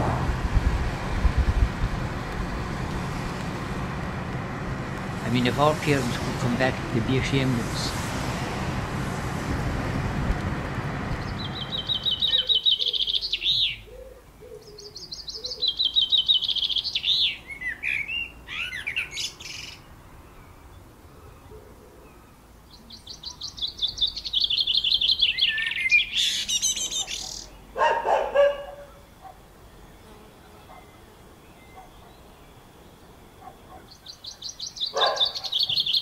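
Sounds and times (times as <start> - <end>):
steady rushing noise: 0.0 - 12.5
songbird trilling: 11.2 - 19.9, 22.7 - 28.0, 33.5 - 36.0.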